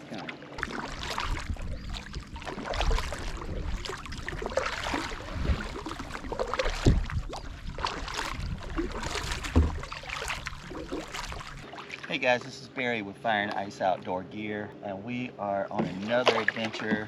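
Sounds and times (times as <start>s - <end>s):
water splashing and sloshing: 0.0s - 14.2s, 15.6s - 17.0s
low rumble: 0.8s - 11.6s.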